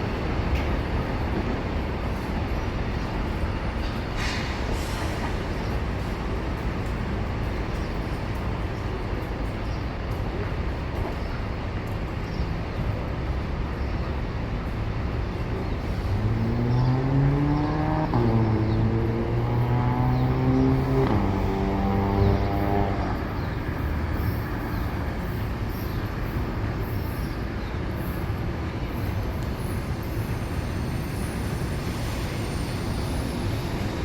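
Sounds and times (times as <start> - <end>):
vehicles passing: 14.7 - 27.1
vehicle motor accelerating: 16.3 - 23.2.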